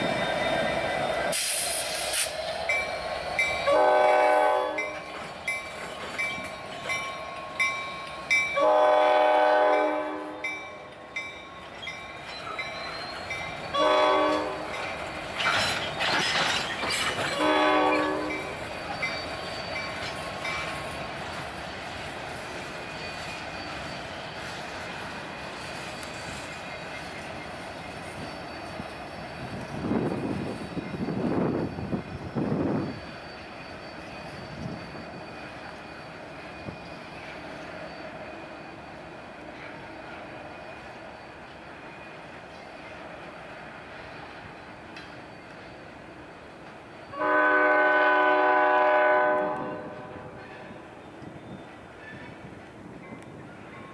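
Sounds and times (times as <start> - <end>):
crossing bell ringing: 0.0 - 1.4, 2.6 - 16.0, 17.1 - 43.2
train wheels rumbling: 0.0 - 53.9
locomotive air horn blowing: 3.6 - 4.9, 8.6 - 10.5, 13.8 - 14.7, 17.4 - 18.5, 47.1 - 50.4.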